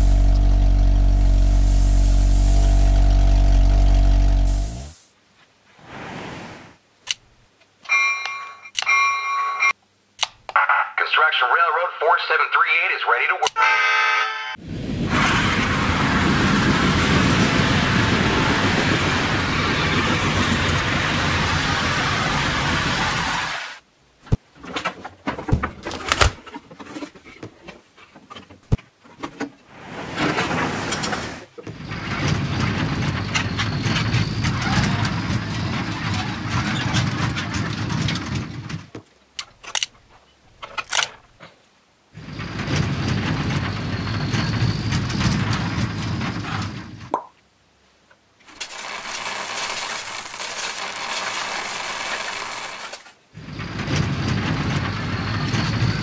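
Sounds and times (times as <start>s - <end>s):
small toy motor running: 48.7s - 53.0s.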